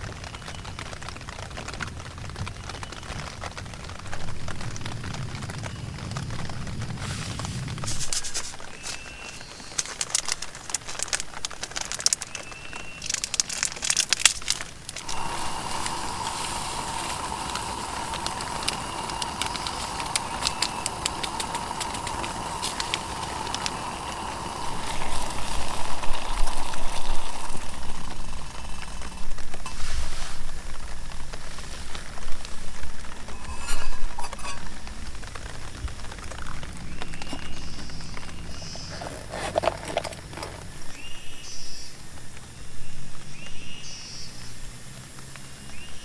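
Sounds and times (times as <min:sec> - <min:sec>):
camping stove burner hissing: 0:00.0 - 0:46.0
water boiling: 0:00.0 - 0:46.0
clicking crackling handling noises: 0:06.8 - 0:41.0
low rumbling: 0:14.4 - 0:41.2.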